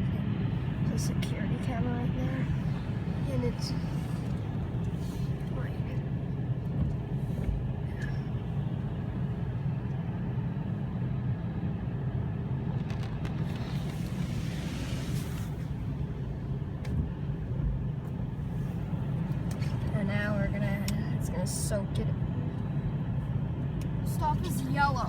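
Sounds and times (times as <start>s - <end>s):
car wash low hum: 0.0s - 25.0s
car wash hiss: 13.2s - 16.7s.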